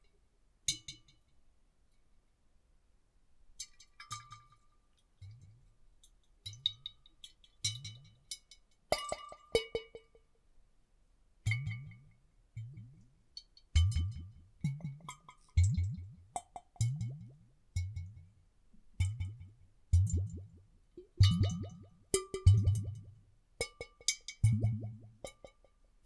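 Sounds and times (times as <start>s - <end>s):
water sloshing in glass bottles: 20.1s - 25.6s.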